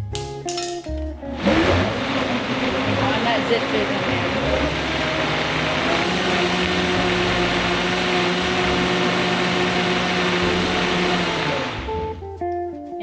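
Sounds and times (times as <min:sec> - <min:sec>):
blender motor whine: 0:01.3 - 0:12.2.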